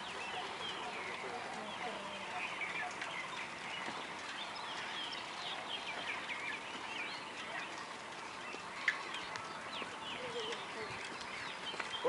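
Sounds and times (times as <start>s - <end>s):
birds chirping and calling: 0.0s - 12.0s
faint outdoor hiss: 0.0s - 12.0s.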